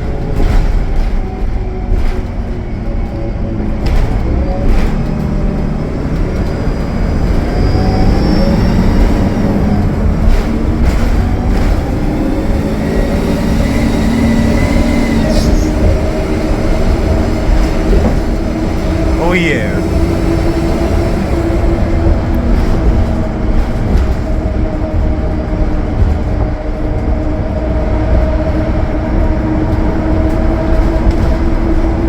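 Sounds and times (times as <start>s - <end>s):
bus diesel engine running: 0.0s - 32.0s
road rumble: 0.0s - 32.0s.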